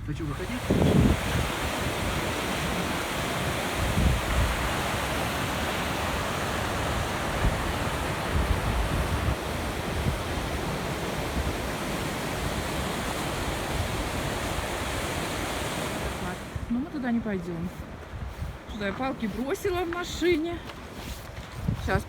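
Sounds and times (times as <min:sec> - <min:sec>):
rushing wind: 0:00.0 - 0:19.9, 0:20.7 - 0:22.0
wind buffeting microphone: 0:00.0 - 0:22.0
running water of waterfall: 0:00.2 - 0:17.3.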